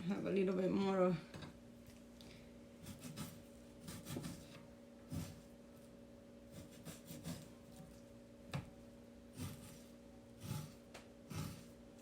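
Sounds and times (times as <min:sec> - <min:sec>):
faint steady hum: 0:00.0 - 0:12.0
knife slicing raw meat: 0:06.5 - 0:07.5, 0:09.4 - 0:11.7.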